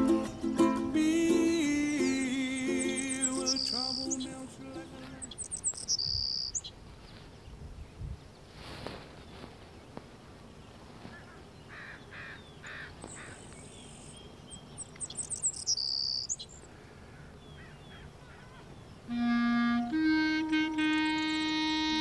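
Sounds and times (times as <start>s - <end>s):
clarinet playing: 0.0s - 5.1s, 19.1s - 22.0s
birds chirping and calling: 1.7s - 7.2s, 11.0s - 19.1s.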